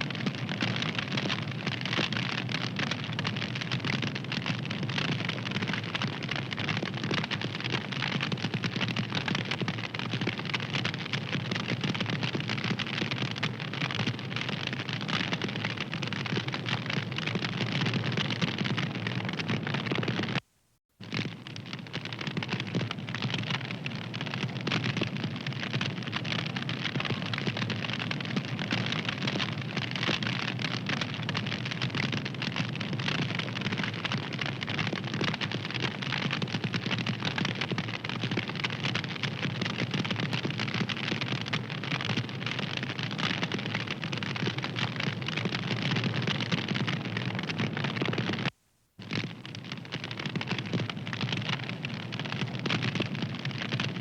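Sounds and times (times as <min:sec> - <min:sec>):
wood fire crackling: 0:21.0 - 0:53.9.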